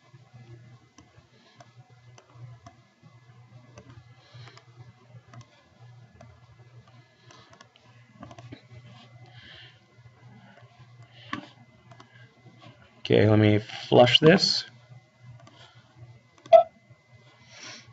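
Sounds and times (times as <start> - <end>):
low electrical hum: 0.0 - 17.9
computer mouse clicks: 1.0 - 2.8, 3.7 - 4.7, 5.3 - 5.6, 6.2 - 8.5, 10.6 - 12.1, 15.4 - 15.6.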